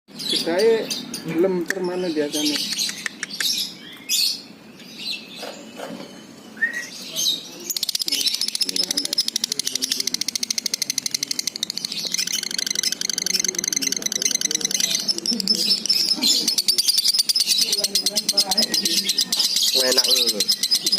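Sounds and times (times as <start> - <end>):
lovebird chirps: 0.1 - 20.9
bird's high chattering trill: 7.6 - 20.9.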